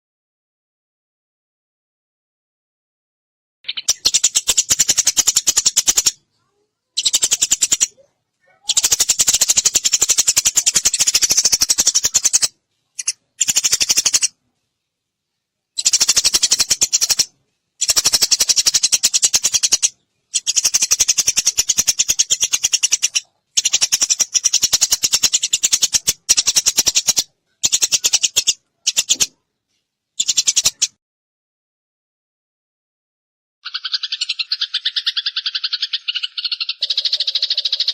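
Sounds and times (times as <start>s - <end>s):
sparrow chirping: 3.7s - 14.4s, 15.7s - 29.4s, 30.2s - 30.9s, 33.6s - 37.9s.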